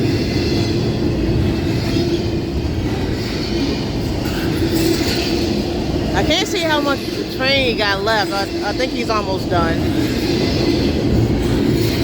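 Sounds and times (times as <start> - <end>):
freight train wheels rumbling on rail: 0.0 - 12.0.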